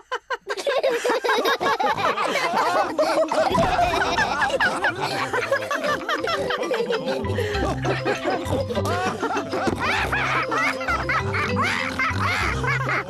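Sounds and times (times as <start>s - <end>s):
cartoon voices laughing: 0.0s - 13.0s
music: 3.2s - 13.0s.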